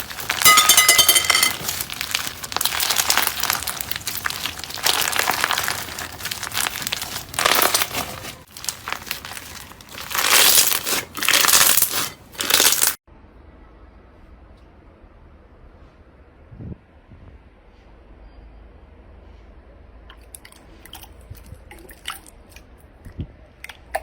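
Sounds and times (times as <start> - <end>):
slime squeezed crackling and popping: 0.0 - 0.6, 1.5 - 13.0.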